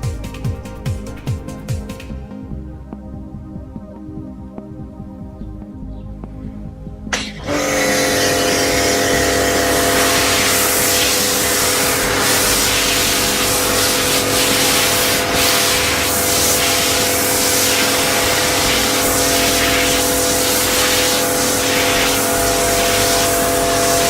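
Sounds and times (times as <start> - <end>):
pressure washer spraying: 7.2 - 24.0.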